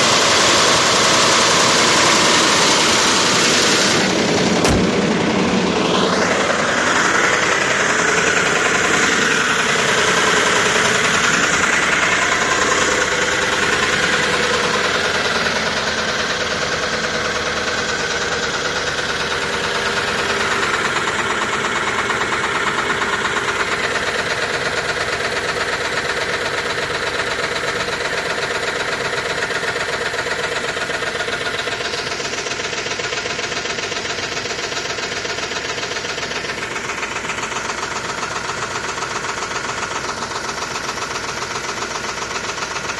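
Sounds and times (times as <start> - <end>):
car engine running with ticking: 0.0 - 42.9.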